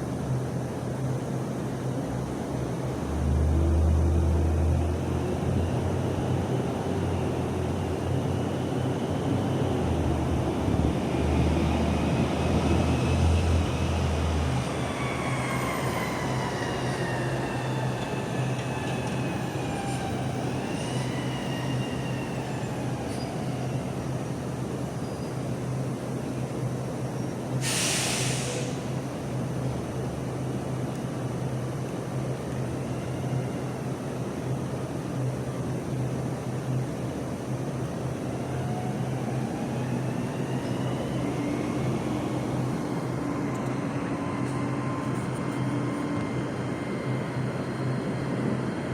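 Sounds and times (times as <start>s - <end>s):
high squeal sliding down: 12.9s - 23.8s
short hiss: 27.6s - 28.8s.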